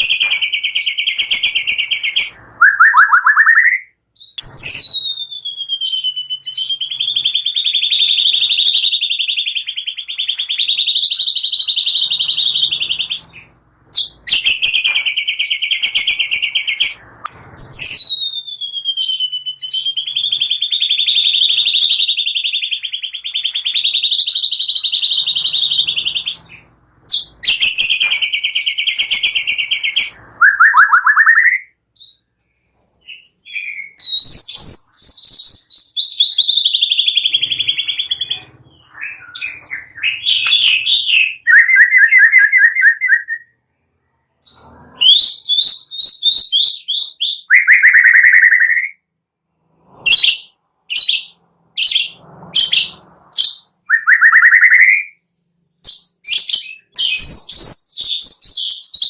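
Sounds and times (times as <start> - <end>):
rising bird chirps: 0.0 - 32.4.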